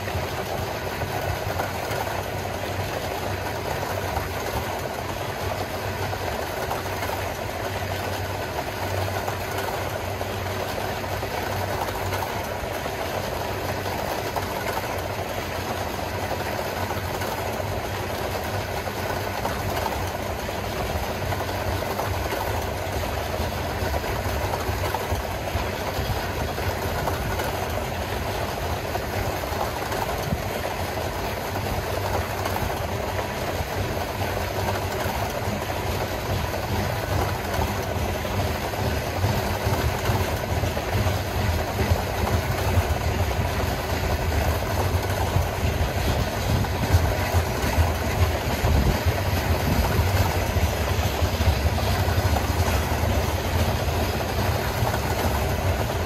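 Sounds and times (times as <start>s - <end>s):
continuous rail noise: 0.0s - 56.0s
diesel locomotive engine hum: 0.0s - 56.0s.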